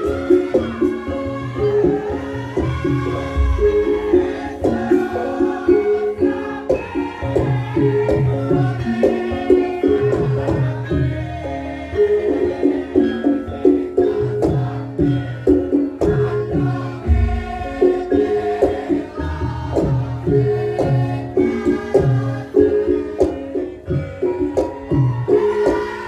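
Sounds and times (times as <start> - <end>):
ringing struck metal notes: 0.0 - 6.4
gamelan music: 0.0 - 26.0.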